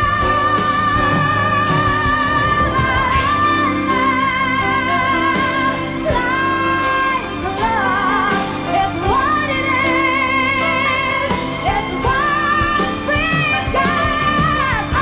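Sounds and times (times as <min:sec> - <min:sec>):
instrumental accompaniment: 0:00.0 - 0:15.0
woman singing a ballad: 0:00.0 - 0:15.0.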